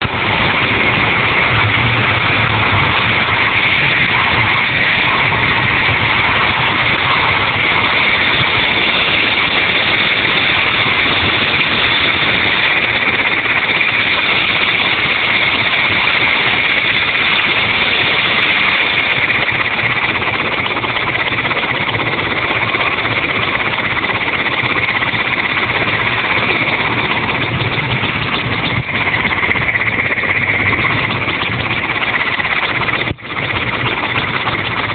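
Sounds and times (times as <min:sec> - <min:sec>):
constant high whine: 0:00.0 - 0:34.9
helicopter turbine and rotor: 0:00.0 - 0:34.9.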